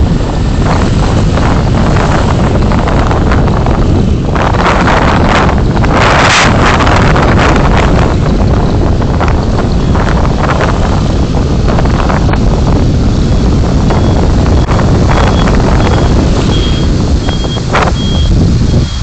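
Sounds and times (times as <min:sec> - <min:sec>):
road and wind rumble: 0:00.0 - 0:19.0
short high beeps: 0:14.0 - 0:19.0.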